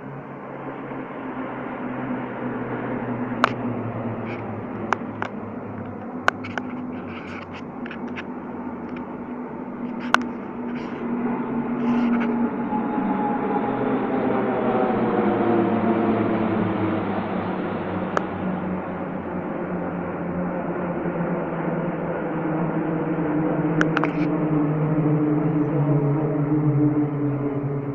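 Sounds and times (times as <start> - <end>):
aircraft engine drone: 0.0 - 27.9
sharp clicks: 23.8 - 24.2.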